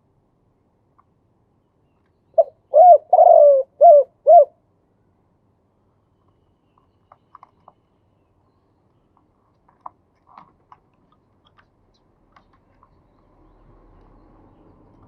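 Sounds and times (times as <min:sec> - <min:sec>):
dove cooing: 0:02.4 - 0:04.6
faint small clicks: 0:06.2 - 0:07.8, 0:08.9 - 0:13.3.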